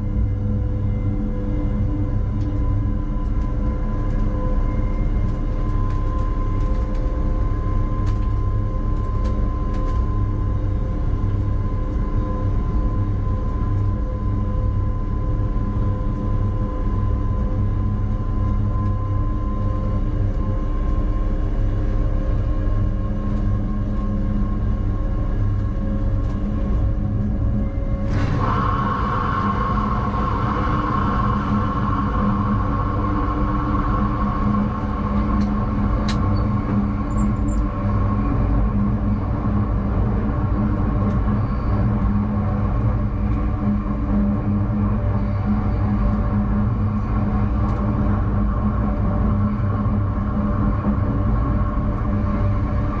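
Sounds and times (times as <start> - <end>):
held hum: 0.0 - 53.0
train rumbling on rails: 26.2 - 53.0.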